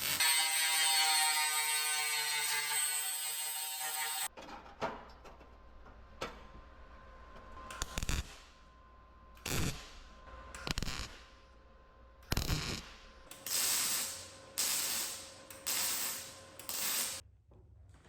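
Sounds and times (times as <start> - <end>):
noisy tool strokes: 12.4 - 17.2.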